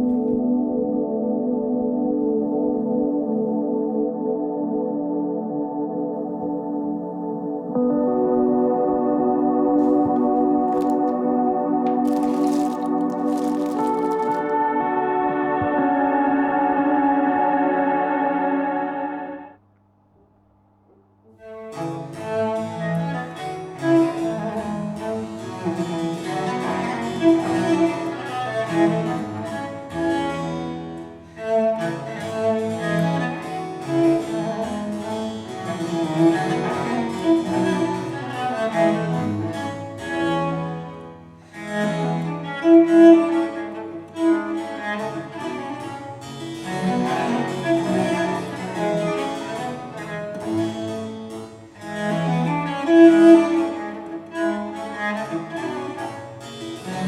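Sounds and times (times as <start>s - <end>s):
keyboard: 0.0s - 19.6s
bowed strings: 21.4s - 57.0s.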